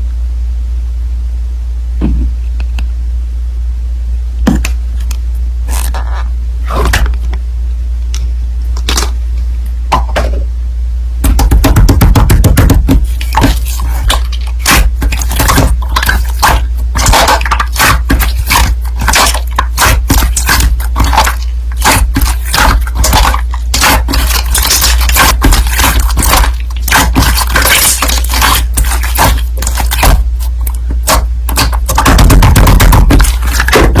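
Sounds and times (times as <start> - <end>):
steady low hum: 0.0 - 34.0
slime squelching and crackling: 11.4 - 34.0.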